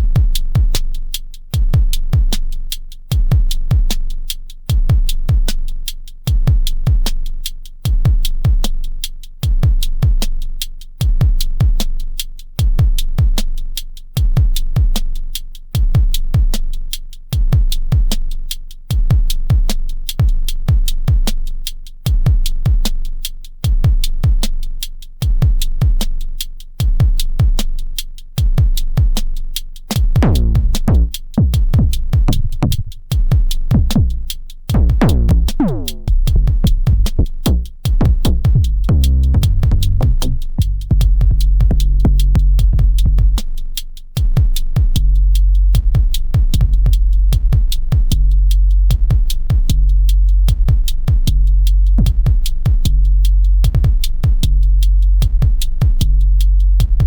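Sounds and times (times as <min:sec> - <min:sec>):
kick drum booms: 0:00.0 - 0:00.8, 0:01.6 - 0:02.3, 0:03.1 - 0:04.0, 0:04.7 - 0:05.6, 0:06.3 - 0:07.1, 0:11.0 - 0:11.8, 0:15.8 - 0:16.5, 0:18.9 - 0:21.3, 0:22.1 - 0:22.8, 0:23.7 - 0:24.5, 0:25.2 - 0:26.0, 0:26.8 - 0:27.6, 0:28.4 - 0:29.2, 0:29.9 - 0:43.6, 0:44.2 - 0:57.0
drum machine electronic beat: 0:00.0 - 0:57.0
hi-hat ticks: 0:00.0 - 0:57.0.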